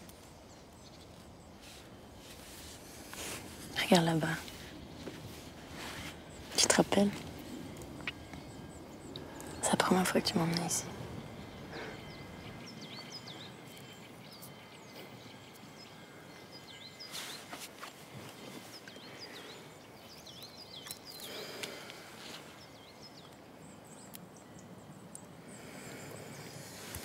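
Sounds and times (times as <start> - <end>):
small birds chirping: 0.0 - 27.0
soft rustles: 1.0 - 7.5, 17.0 - 19.0.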